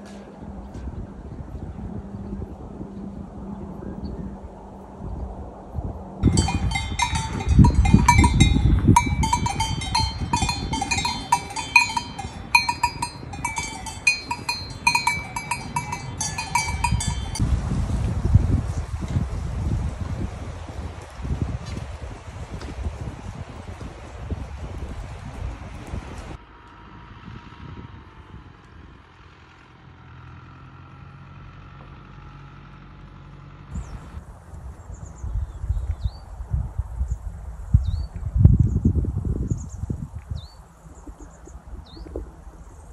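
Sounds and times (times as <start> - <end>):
wind rumble on microphone: 0.0 - 29.2, 33.7 - 42.9
livestock bells clanking: 6.2 - 17.4.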